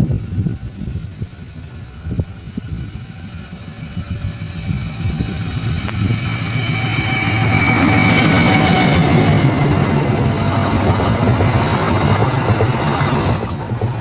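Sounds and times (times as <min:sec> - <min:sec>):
high whine: 0:00.0 - 0:14.0
locomotive engine approaching: 0:00.0 - 0:14.0.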